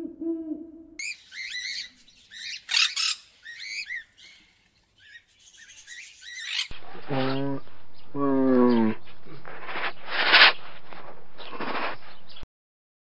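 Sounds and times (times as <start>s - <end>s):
low hoot-like tone: 0.0s - 1.0s, 6.8s - 10.0s
parrot chirping and screeching: 1.0s - 6.8s.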